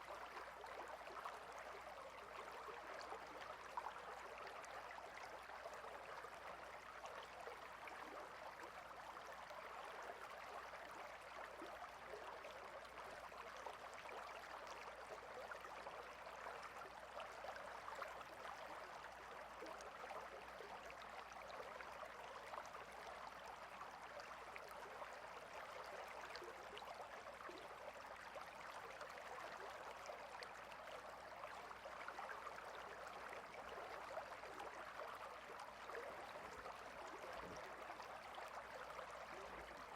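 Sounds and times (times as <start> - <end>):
stream babbling over stones: 30.2 - 39.9.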